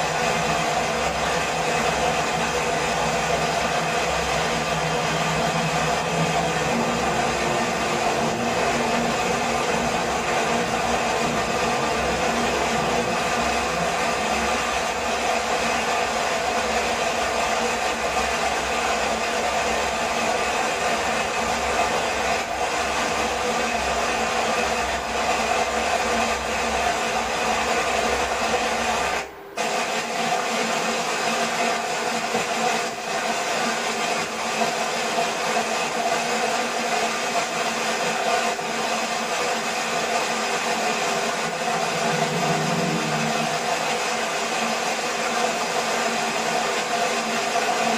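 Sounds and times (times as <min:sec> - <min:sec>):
waterfall rushing: 0:02.8 - 0:15.6.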